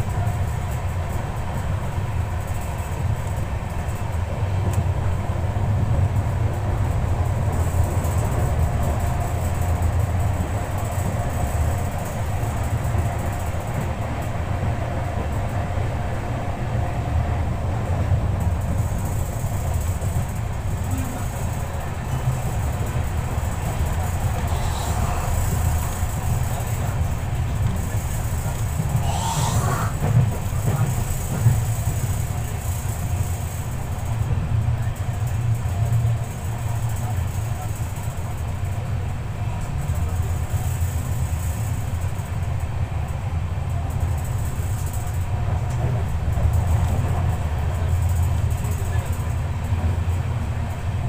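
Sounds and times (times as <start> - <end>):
train wheels rumbling on rails: 0.0 - 51.0
rushing air: 29.0 - 30.2.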